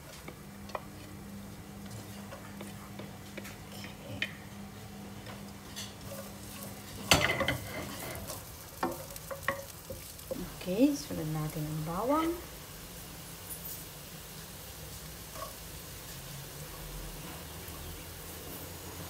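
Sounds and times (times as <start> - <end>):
wooden spatula scraping a pan: 0.0 - 4.1, 5.3 - 11.2
ginger sizzling in oil: 0.0 - 19.0.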